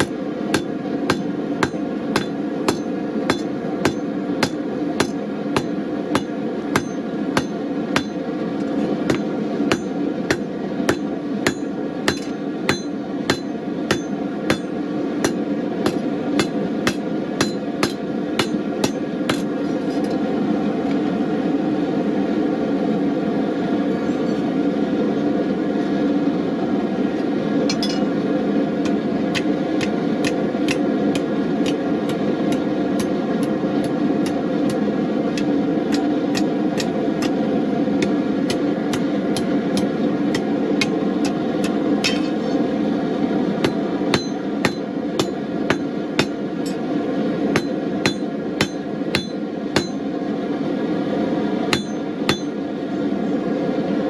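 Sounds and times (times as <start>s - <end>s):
hammer striking steel on anvil: 0.0s - 8.3s, 9.1s - 20.1s, 27.7s - 28.2s, 28.8s - 37.4s, 38.0s - 42.6s, 43.6s - 46.9s, 47.5s - 50.1s, 51.7s - 52.6s
gas forge roaring: 0.0s - 54.0s.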